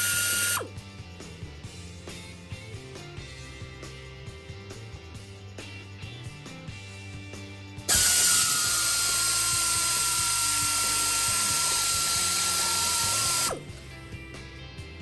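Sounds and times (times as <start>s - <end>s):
electric ratchet whine: 0.0s - 0.8s, 7.9s - 13.8s.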